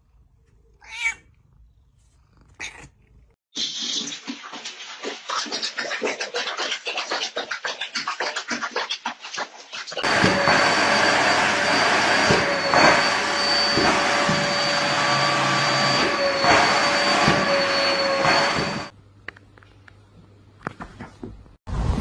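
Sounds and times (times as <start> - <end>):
vacuum cleaner running: 10.0 - 18.9.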